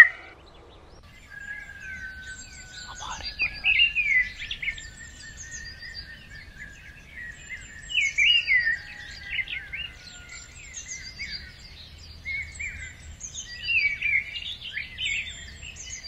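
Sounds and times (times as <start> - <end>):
birds chirping and singing: 0.0 - 16.0.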